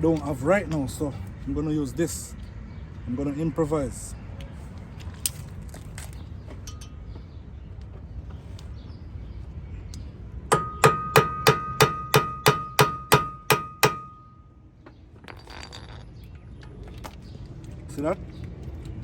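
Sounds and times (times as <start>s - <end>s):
hammer striking metal rotor: 10.5s - 14.4s.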